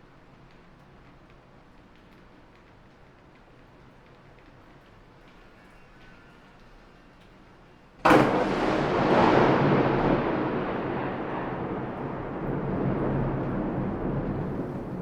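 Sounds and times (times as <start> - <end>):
thunder crack: 8.0 - 15.0
thunder rumble: 8.0 - 15.0
heavy rain: 8.1 - 15.0.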